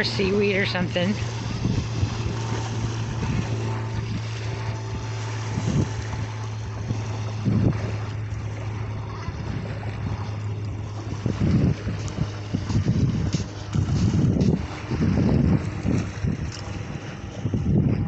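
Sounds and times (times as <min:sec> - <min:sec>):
steady low hum: 0:00.0 - 0:18.0
wind buffeting microphone: 0:00.0 - 0:18.0.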